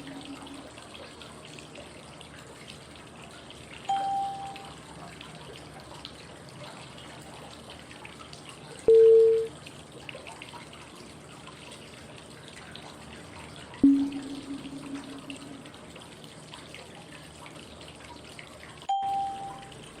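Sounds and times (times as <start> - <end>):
flowing water white noise: 0.0 - 1.0, 3.8 - 5.1
short beeps: 3.9 - 4.7, 8.9 - 9.5, 13.8 - 15.7, 18.9 - 19.7.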